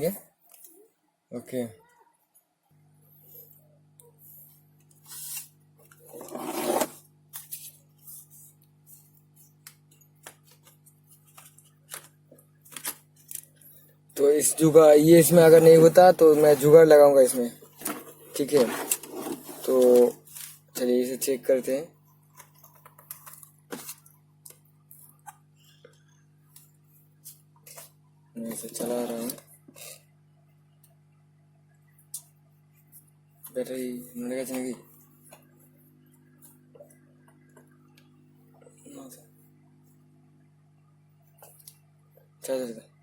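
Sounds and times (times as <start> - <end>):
low electrical hum: 0.0 - 43.0
loud rubbing noise: 6.1 - 7.0.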